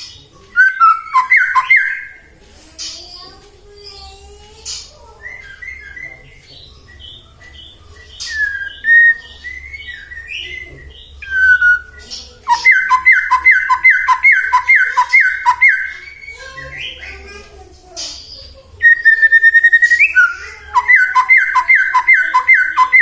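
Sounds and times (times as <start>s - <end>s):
bird singing whistled phrases: 0.5s - 2.3s, 5.2s - 17.0s, 18.8s - 23.0s.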